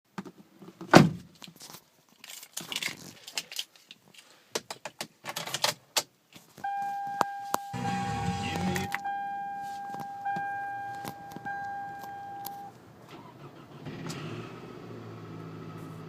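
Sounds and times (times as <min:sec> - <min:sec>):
thump: 0:00.9 - 0:01.2
high electronic warning tone: 0:06.7 - 0:12.7
car keys jangling and clicking: 0:10.9 - 0:12.7.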